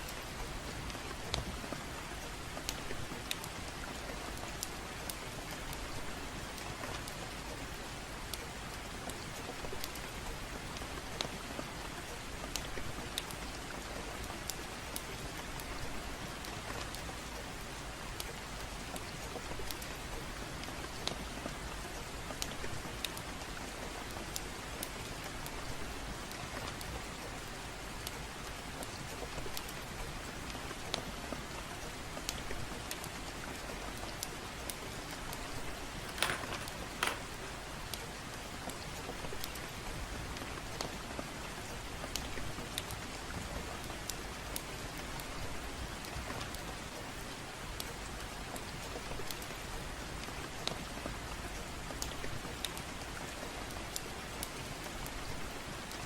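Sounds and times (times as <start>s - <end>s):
gentle rain falling: 0.0s - 56.0s.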